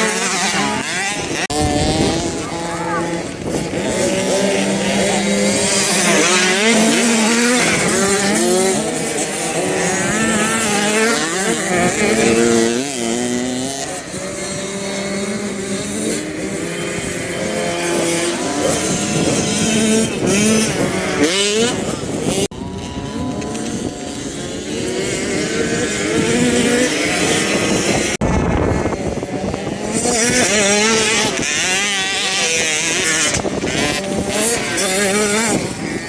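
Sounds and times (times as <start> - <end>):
motocross bike engines revving: 0.0 - 36.0.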